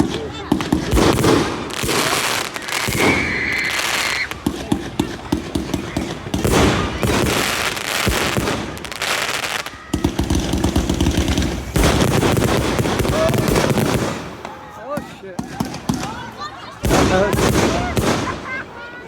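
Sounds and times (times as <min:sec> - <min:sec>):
fireworks bangs and crackles: 0:00.0 - 0:19.0
firework whistle: 0:01.9 - 0:04.5.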